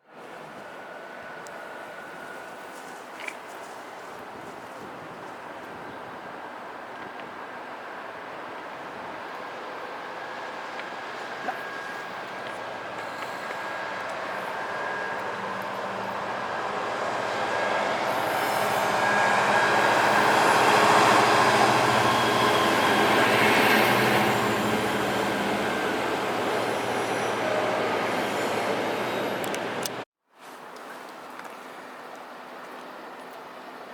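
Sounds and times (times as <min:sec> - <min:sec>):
train passing rumble: 0:00.1 - 0:30.0
high wheel squeal: 0:11.6 - 0:29.8.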